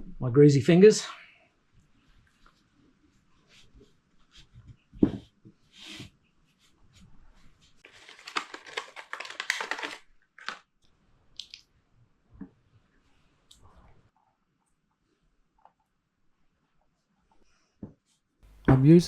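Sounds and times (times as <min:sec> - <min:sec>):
crinkly tearing rustle: 0:07.8 - 0:10.6.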